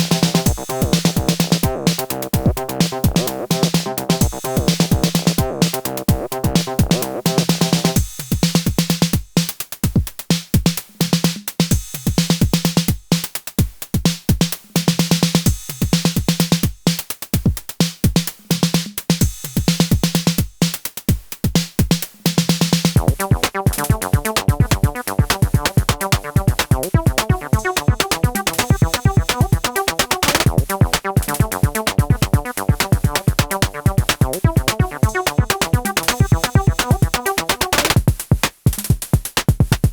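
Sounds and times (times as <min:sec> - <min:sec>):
fast synth sequence: 0:00.0 - 0:05.3, 0:23.0 - 0:38.0
drum-machine percussion: 0:00.0 - 0:14.6, 0:19.2 - 0:39.9
pulsing synth bass: 0:00.3 - 0:07.2, 0:23.0 - 0:38.0.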